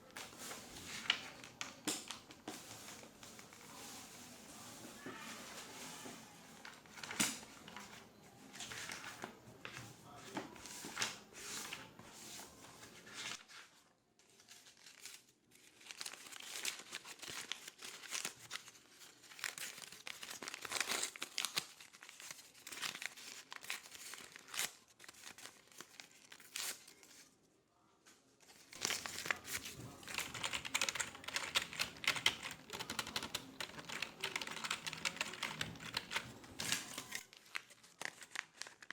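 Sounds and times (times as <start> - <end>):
clicking and crinkling handling: 0.1 - 13.5, 28.4 - 38.9
keyboard typing: 29.0 - 37.2.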